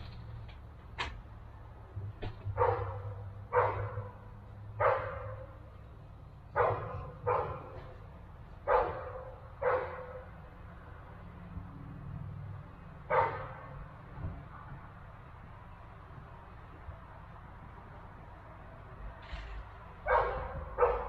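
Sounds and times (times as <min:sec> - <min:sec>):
dog barking: 0:02.5 - 0:05.6, 0:06.5 - 0:08.0, 0:08.6 - 0:10.4, 0:13.1 - 0:13.7, 0:20.0 - 0:21.0.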